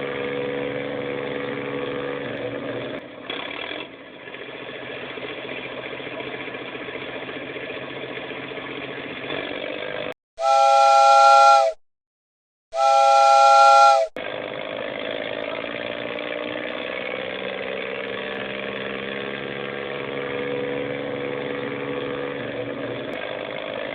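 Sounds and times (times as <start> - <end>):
engine running: 0.0 - 11.7, 12.8 - 23.9
steam train whistle chord: 10.4 - 11.8, 12.7 - 14.2.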